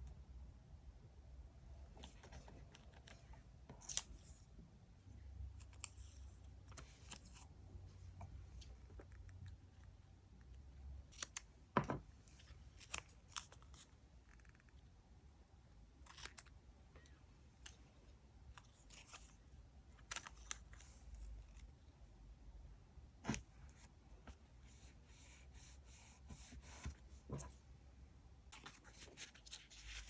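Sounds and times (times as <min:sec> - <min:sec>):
paper rustling: 0:28.5 - 0:30.0.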